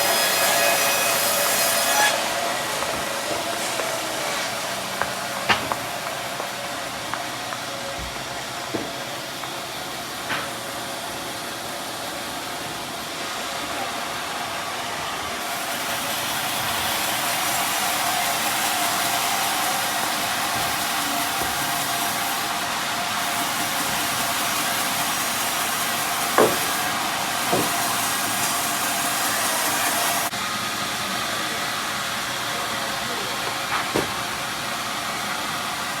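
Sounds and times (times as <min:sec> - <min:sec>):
band saw cutting log: 0:00.0 - 0:07.5, 0:08.4 - 0:30.4
sharp knocks: 0:05.0 - 0:05.9, 0:26.4 - 0:26.8, 0:27.5 - 0:27.8, 0:33.7 - 0:34.2.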